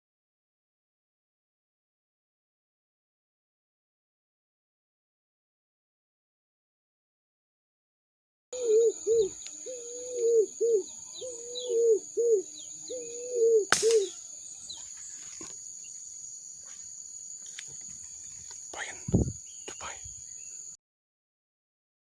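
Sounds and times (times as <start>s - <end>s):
bird calling: 8.6s - 15.5s
high insect drone: 8.6s - 20.8s
sharp crack: 13.7s - 14.2s.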